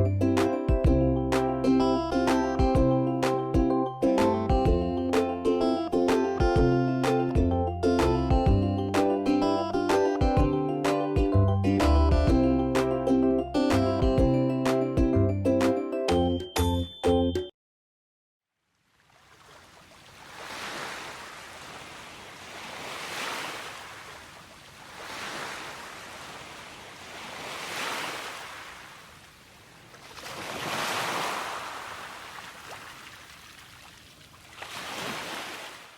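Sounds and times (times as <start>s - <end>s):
small waves washing onto shore: 18.8s - 35.9s.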